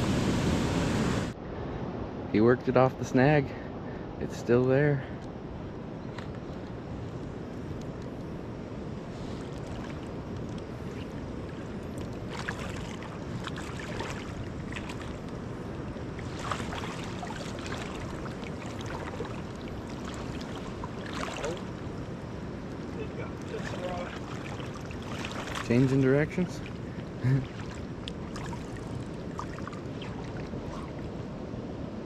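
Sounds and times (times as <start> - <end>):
steady wind: 0.0 - 32.0
river water flowing: 6.5 - 31.5.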